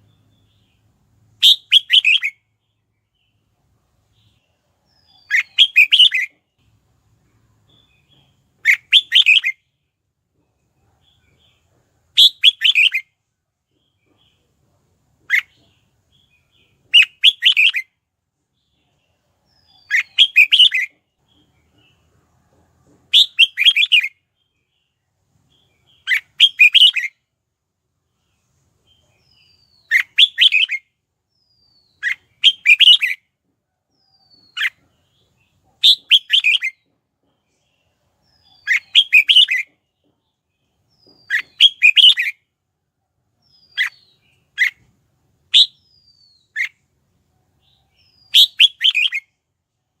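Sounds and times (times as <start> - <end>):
bulbul chirpy song: 0.0 - 3.4, 4.0 - 6.7, 7.6 - 9.9, 11.5 - 13.3, 15.2 - 18.1, 19.6 - 22.0, 23.1 - 24.9, 25.7 - 27.3, 29.0 - 33.4, 34.0 - 36.9, 37.5 - 42.6, 43.4 - 49.5.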